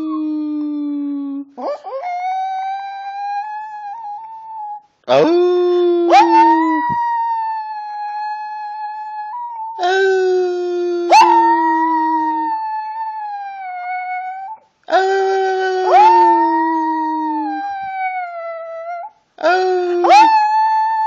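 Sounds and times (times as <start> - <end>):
dog howling: 6.1 - 9.8, 11.1 - 14.6, 15.4 - 19.1, 19.9 - 21.0.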